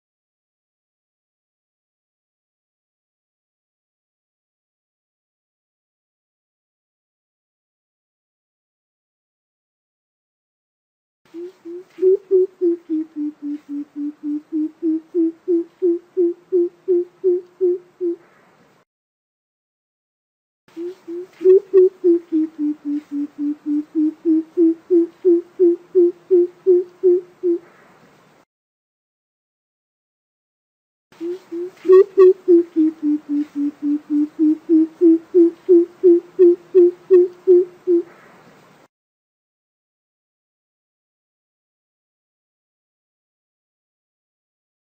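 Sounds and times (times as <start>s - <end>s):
bird giving deep hoots: 11.4s - 18.2s, 20.8s - 27.7s, 31.2s - 38.1s.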